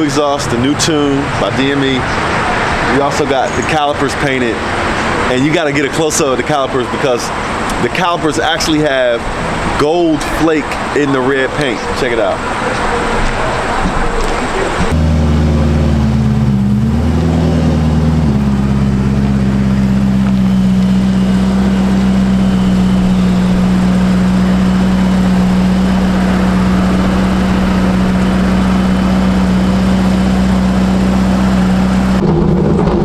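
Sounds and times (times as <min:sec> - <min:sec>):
car engine running at steady revs: 0:11.6 - 0:33.0.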